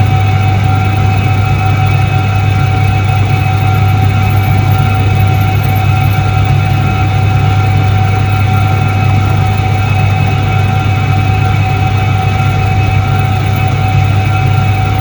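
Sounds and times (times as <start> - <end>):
washing machine motor humming: 0.2 - 15.0.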